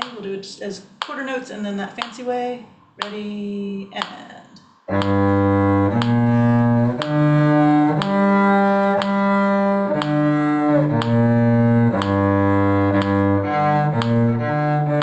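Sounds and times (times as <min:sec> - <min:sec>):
bowed cello notes: 0:04.9 - 0:15.0.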